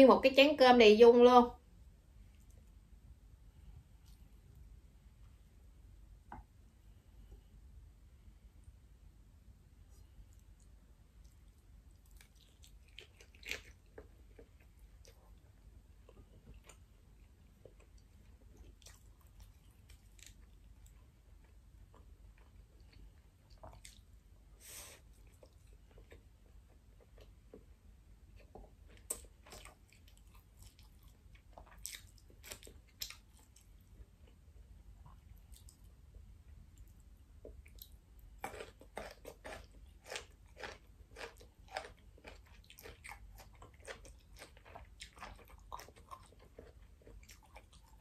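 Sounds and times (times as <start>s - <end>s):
faint chewing: 9.8s - 48.0s.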